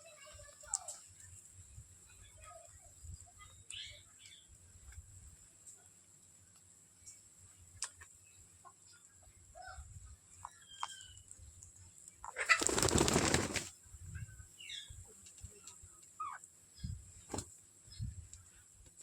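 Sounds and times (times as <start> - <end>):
parrot wings flapping: 12.5 - 13.7.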